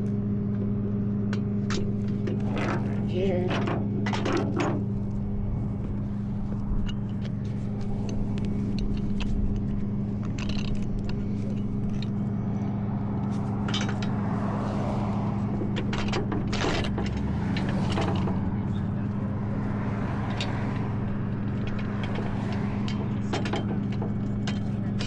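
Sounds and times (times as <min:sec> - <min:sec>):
truck engine idling: 0:00.0 - 0:25.0
metallic clicks and scrapes: 0:01.3 - 0:25.0.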